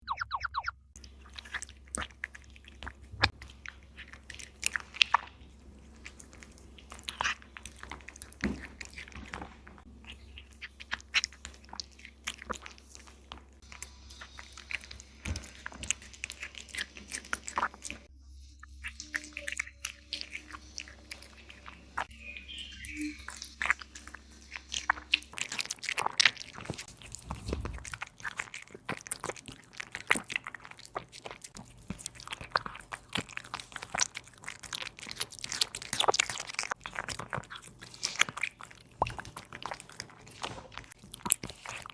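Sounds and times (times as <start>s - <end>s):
cat crunching food: 1.0s - 18.1s, 19.0s - 22.1s, 23.2s - 41.9s.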